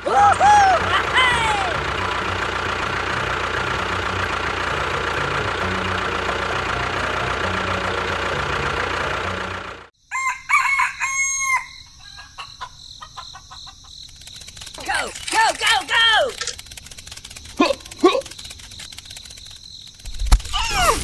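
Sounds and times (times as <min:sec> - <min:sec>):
engine-like running noise: 0:00.0 - 0:09.9, 0:14.1 - 0:21.0
rooster crowing and clucking: 0:10.1 - 0:14.0.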